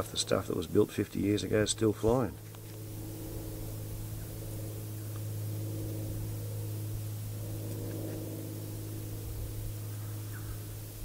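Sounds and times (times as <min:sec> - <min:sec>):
light aircraft droning overhead: 0:00.0 - 0:11.0.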